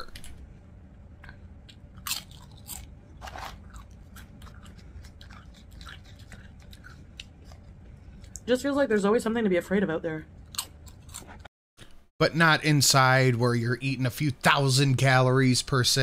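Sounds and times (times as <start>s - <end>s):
person crunching chips: 1.8s - 7.7s.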